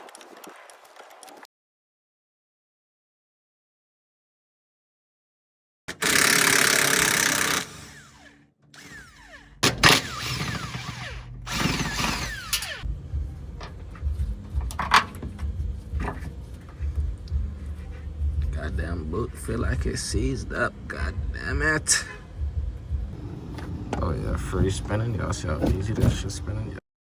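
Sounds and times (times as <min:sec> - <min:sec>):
power tool whirring: 0:05.9 - 0:12.9.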